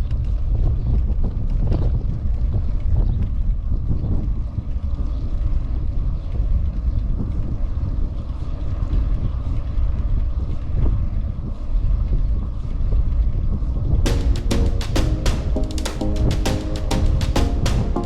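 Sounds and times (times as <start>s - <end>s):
wind buffeting microphone: 0.0s - 14.1s.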